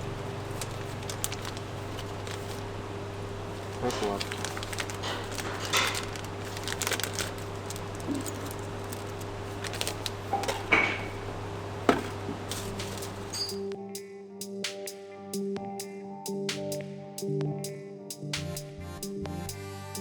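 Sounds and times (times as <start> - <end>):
low electrical hum: 0.0 - 13.8
metal tools clinking: 3.7 - 11.2, 12.0 - 13.7.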